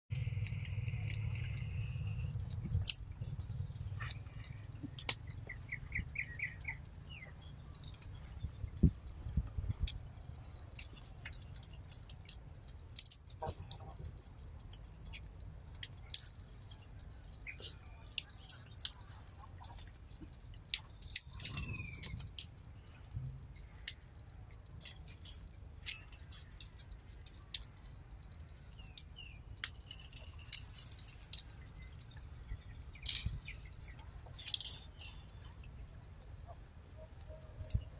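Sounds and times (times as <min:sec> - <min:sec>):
bird chirping: 0:03.2 - 0:09.0, 0:20.9 - 0:23.0, 0:31.4 - 0:37.9.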